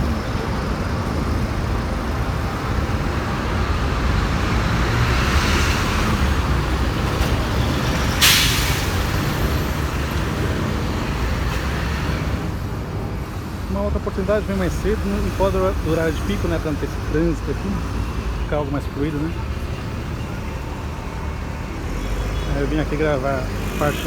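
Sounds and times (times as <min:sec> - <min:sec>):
heavy road traffic rumbling: 0:00.0 - 0:24.0
sharp hiss of air: 0:08.2 - 0:09.3.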